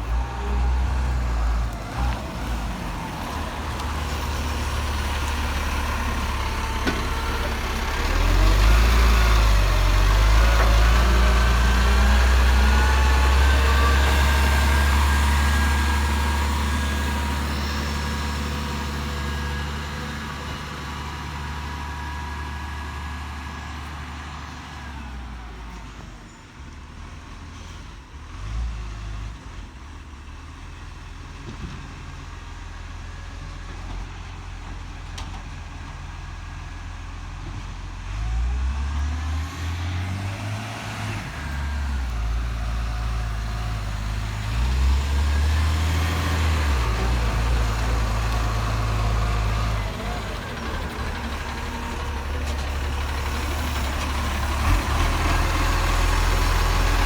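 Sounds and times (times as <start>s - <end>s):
garbage truck engine revving: 0.0s - 24.5s, 38.0s - 57.0s.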